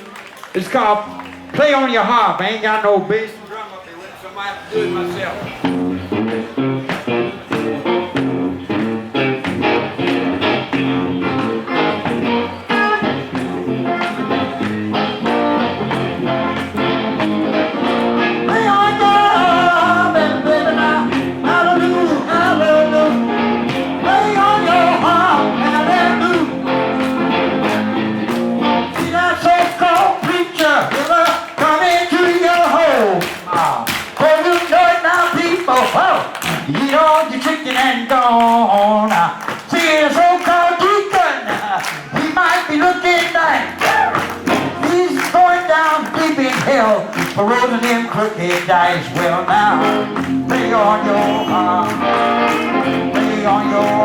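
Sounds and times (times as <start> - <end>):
blues guitar rhythm: 0.0 - 2.9, 4.7 - 54.0
lead guitar bending notes: 1.0 - 2.1, 4.7 - 30.2, 42.6 - 47.8, 48.5 - 54.0.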